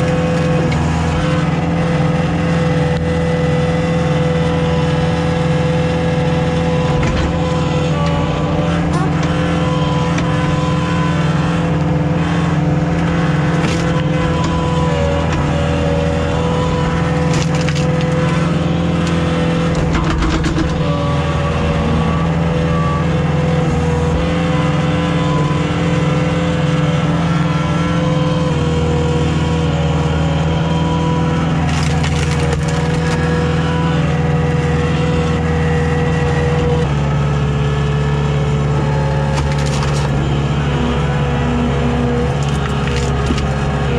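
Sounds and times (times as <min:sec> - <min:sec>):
diesel engine under load: 0:00.0 - 0:43.9
firewood cracking apart: 0:17.0 - 0:18.6, 0:31.6 - 0:33.5, 0:39.3 - 0:40.2, 0:42.2 - 0:43.8.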